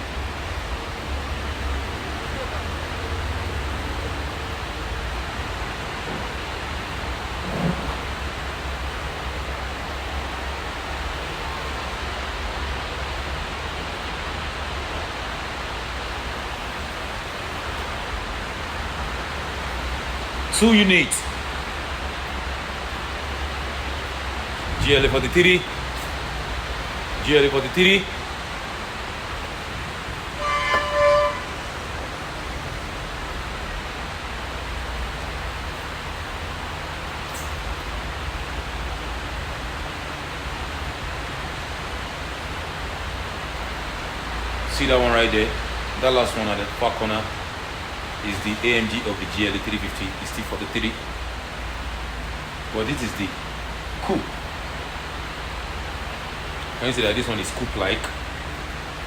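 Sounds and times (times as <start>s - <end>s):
rain hissing: 0.0s - 59.0s
car horn beep: 30.4s - 31.8s.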